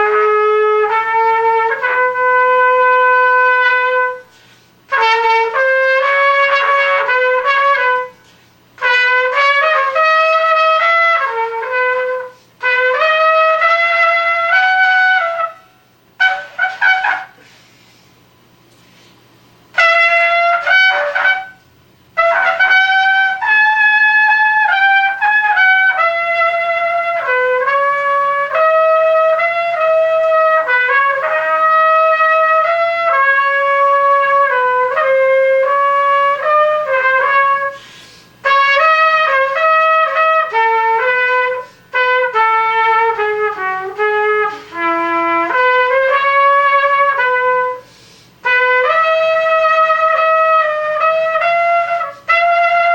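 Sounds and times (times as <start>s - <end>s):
trumpet solo: 0.0s - 17.5s, 19.7s - 52.9s
faint electrical hum: 0.0s - 52.9s.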